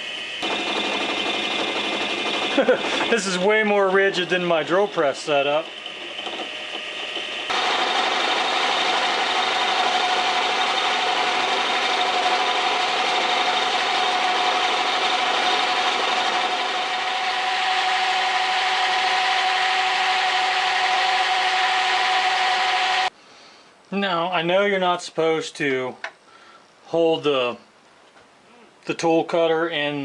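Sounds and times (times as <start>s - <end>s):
metal cutting noise: 0.0s - 23.1s
metal lathe whine: 0.0s - 23.1s.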